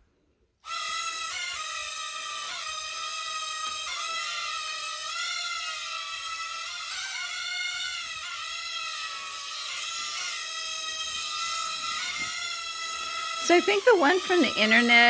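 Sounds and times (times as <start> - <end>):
toy drone propellers whining: 0.6 - 15.0
propeller motors whining: 13.3 - 15.0.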